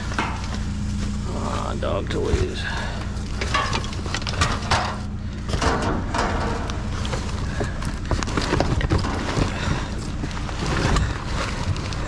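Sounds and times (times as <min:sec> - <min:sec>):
steady low hum: 0:00.0 - 0:12.0
objects knocking and clattering: 0:03.3 - 0:12.0.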